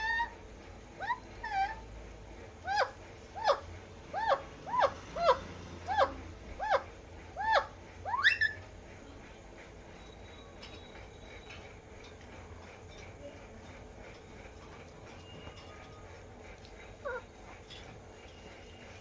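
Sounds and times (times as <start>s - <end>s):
parrot squawking: 0.0s - 0.4s, 1.0s - 1.9s, 2.6s - 8.6s, 17.0s - 17.3s.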